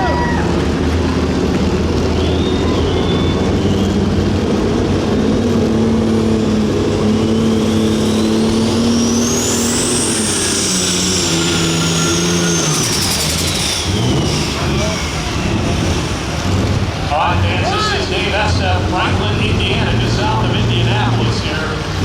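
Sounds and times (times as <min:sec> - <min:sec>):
diesel engine running loud: 0:00.0 - 0:22.0
turbo whine: 0:00.0 - 0:22.0.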